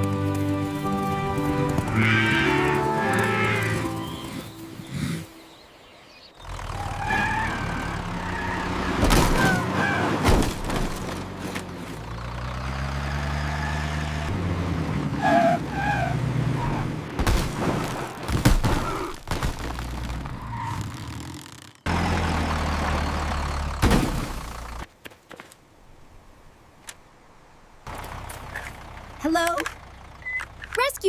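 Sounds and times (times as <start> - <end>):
vehicle engine running: 0.0 - 5.5, 6.3 - 15.1, 19.7 - 24.9, 27.9 - 31.0.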